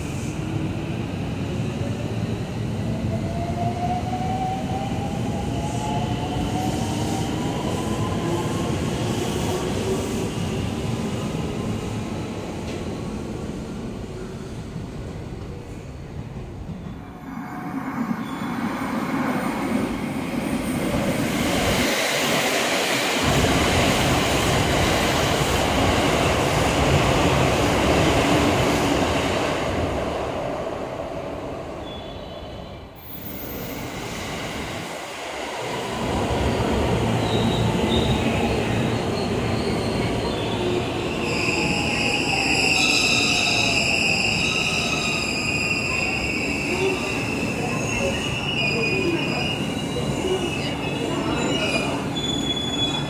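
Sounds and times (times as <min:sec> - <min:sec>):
electric trains running past: 0:00.0 - 0:53.0
wheel or brake squeal: 0:41.2 - 0:53.0.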